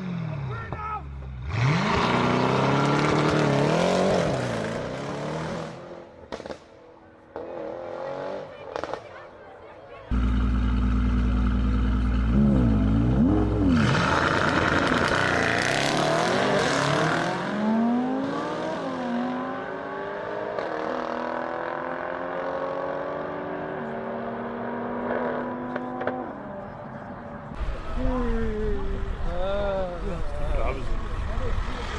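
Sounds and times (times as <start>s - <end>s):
car engine revving and accelerating: 1.3s - 6.7s, 7.3s - 9.1s, 10.1s - 26.8s.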